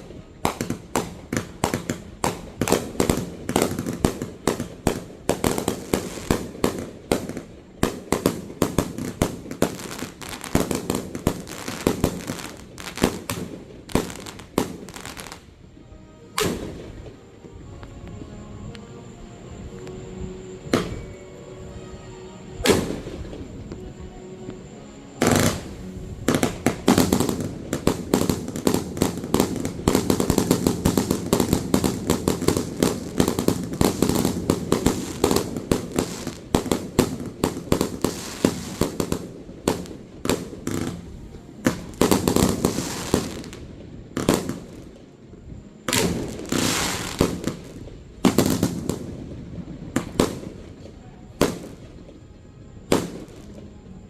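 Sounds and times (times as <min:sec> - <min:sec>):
rapid firework bangs and crackle: 0:00.0 - 0:15.5, 0:25.2 - 0:45.1, 0:45.8 - 0:52.2, 0:52.9 - 0:53.6.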